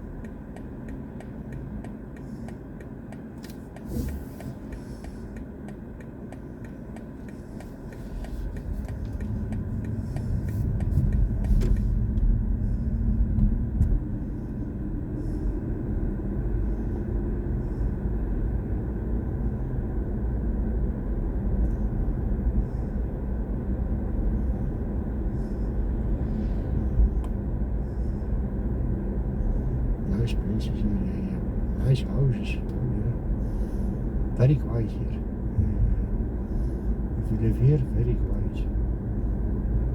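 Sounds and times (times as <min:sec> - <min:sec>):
regular ticking: 0:00.0 - 0:14.2
tyre and road rumble inside car: 0:00.0 - 0:39.9.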